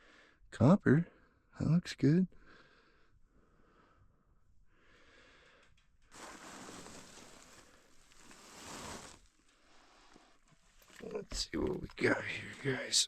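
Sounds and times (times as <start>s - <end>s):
long heavy breath: 2.4s - 5.8s.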